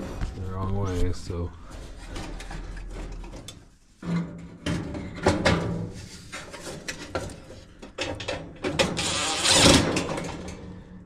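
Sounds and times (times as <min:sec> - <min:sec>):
clunks and rattles of parts: 0:01.6 - 0:11.0.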